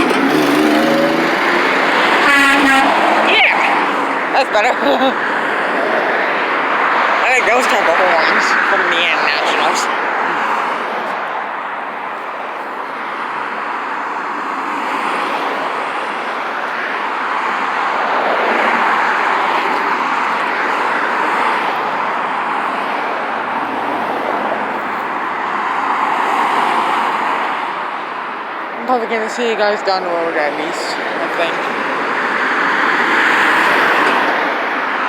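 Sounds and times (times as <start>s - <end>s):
road traffic passing: 0.0s - 35.0s.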